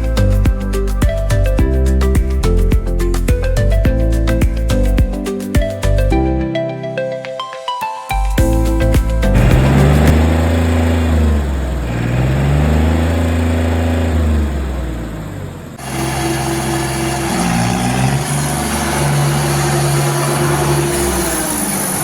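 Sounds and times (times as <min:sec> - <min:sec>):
tractor diesel engine running: 0:08.6 - 0:22.0.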